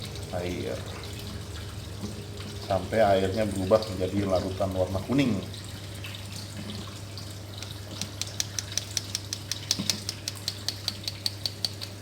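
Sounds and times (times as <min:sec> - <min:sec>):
rapid light tapping on capsule: 0:07.6 - 0:12.0.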